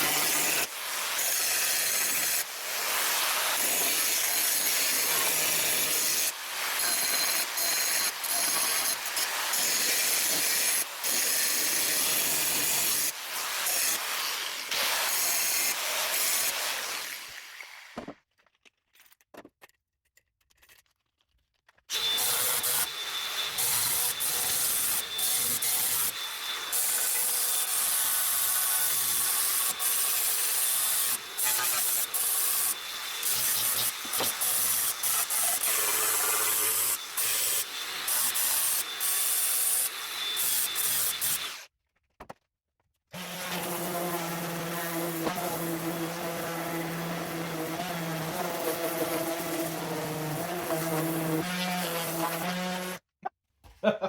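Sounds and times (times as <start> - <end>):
electric sander rasping on steel: 22.0 - 39.5, 43.2 - 53.0.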